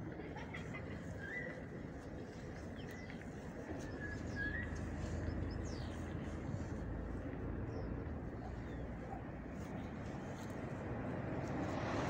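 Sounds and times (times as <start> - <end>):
small birds chirping: 1.1 - 10.6.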